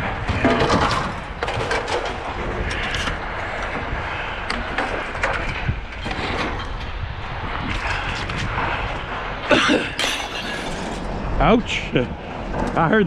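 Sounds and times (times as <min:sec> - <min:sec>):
steady low rumble: 0:00.0 - 0:13.0
scrap metal clanking: 0:09.5 - 0:11.1.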